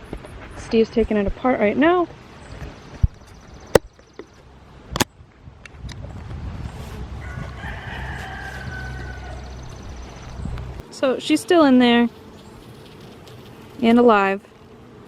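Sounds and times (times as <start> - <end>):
rooster crowing: 7.2 - 9.8.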